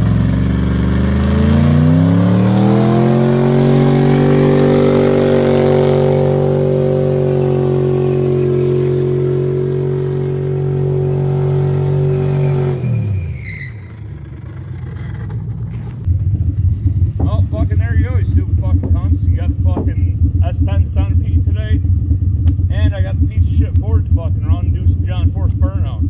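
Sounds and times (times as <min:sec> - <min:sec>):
car engine revving: 0:00.0 - 0:26.0
short high squeaks: 0:12.0 - 0:16.0.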